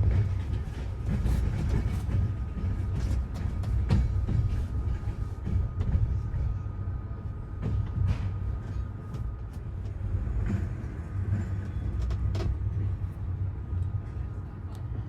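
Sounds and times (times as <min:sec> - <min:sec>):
train rumbling along track: 0:00.0 - 0:15.0.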